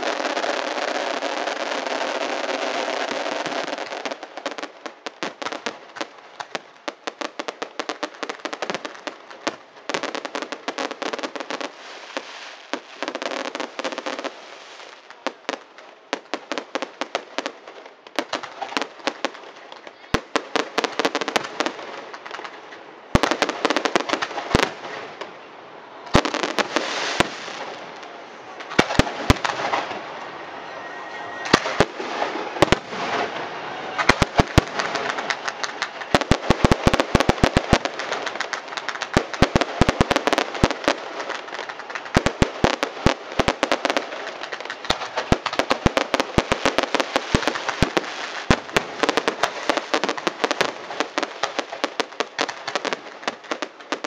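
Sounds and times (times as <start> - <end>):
fireworks crackling pops: 0.0 - 54.0
fireworks sharp bangs: 0.0 - 54.0.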